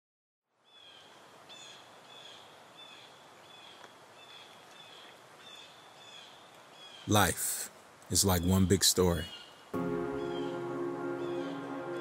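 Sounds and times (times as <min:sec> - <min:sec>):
faint steady hiss: 0:00.5 - 0:12.0
bird chirping: 0:00.6 - 0:07.4, 0:08.1 - 0:12.0.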